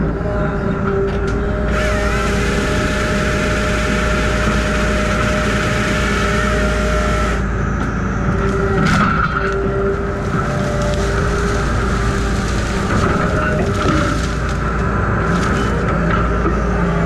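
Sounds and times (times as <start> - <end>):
truck engine running under load: 0.0 - 17.0
loud rushing hiss: 1.7 - 7.5, 10.0 - 14.8.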